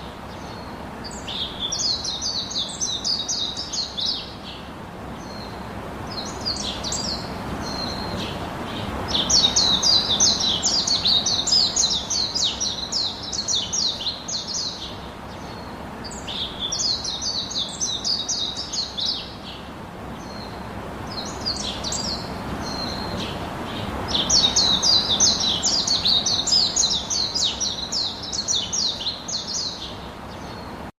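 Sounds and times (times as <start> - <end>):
low background hiss: 0.0 - 30.9
songbirds chirping: 0.0 - 30.9.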